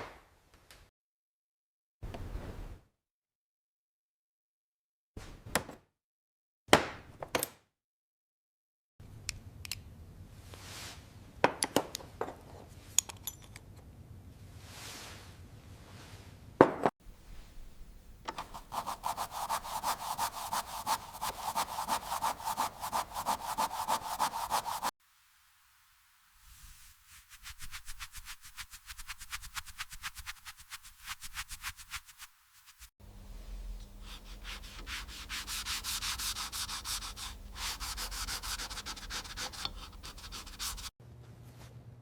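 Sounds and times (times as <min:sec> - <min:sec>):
hand tool rasping on metal: 0:18.4 - 0:24.9, 0:34.2 - 0:40.9.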